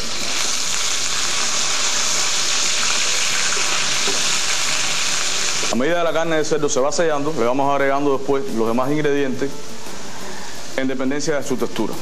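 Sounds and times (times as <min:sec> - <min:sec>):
meat sizzling in oil: 0:00.0 - 0:05.8.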